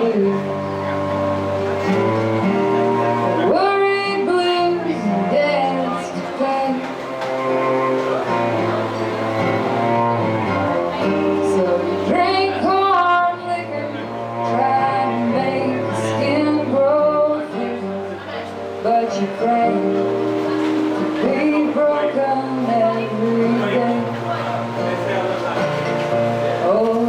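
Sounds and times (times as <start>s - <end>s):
bowed cello: 0.0s - 27.0s
plucked guitar: 0.0s - 27.0s.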